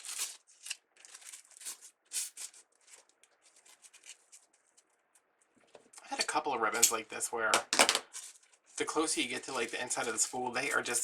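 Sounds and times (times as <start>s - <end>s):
ribbon rustling: 0.0s - 5.7s.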